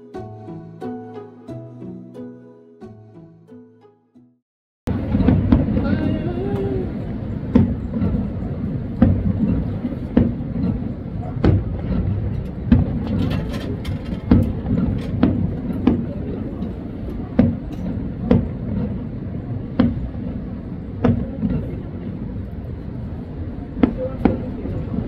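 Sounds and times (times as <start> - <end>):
steady low rumble: 4.9 - 25.0
firework shells bursting: 6.9 - 21.7.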